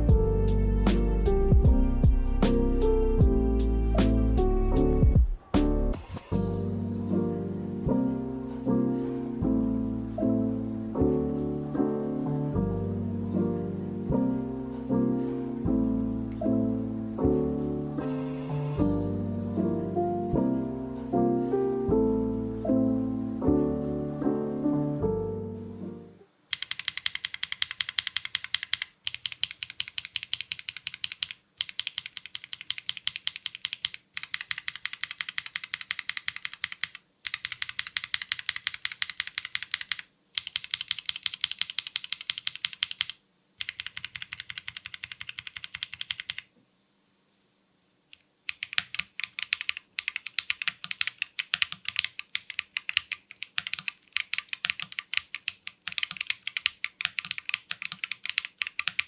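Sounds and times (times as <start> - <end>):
mechanical keyboard typing: 26.5 - 46.5, 48.1 - 59.0.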